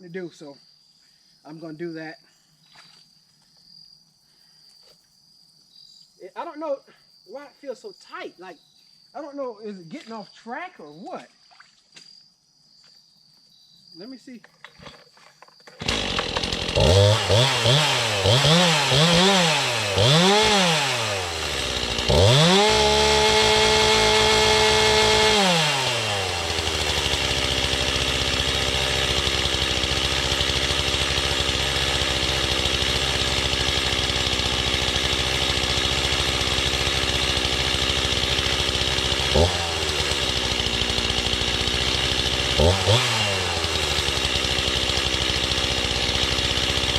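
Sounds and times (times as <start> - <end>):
chainsaw revving and idling: 15.6 - 46.9.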